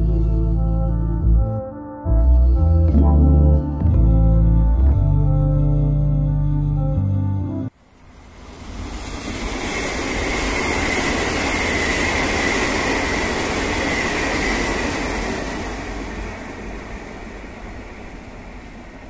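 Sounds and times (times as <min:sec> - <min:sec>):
high whine of electric train: 0:07.7 - 0:19.0
train wheels rumbling on rails: 0:08.2 - 0:19.0.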